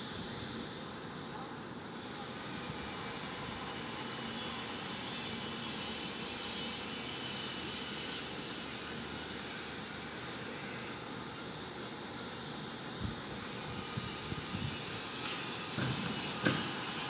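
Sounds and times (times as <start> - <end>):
city ambience: 0.0 - 17.0.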